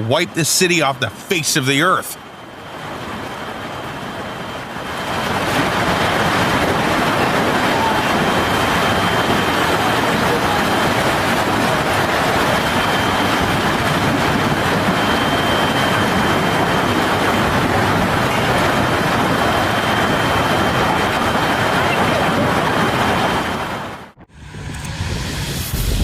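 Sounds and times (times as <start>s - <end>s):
heavy rain: 0.0s - 24.2s
wind: 0.0s - 26.0s.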